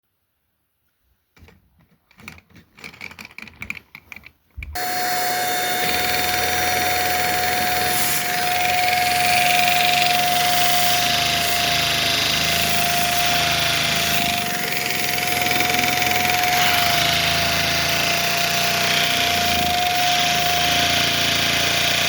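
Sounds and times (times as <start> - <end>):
plastic parts clicking and rattling: 1.4 - 4.8
electric motor whirring: 4.8 - 22.0.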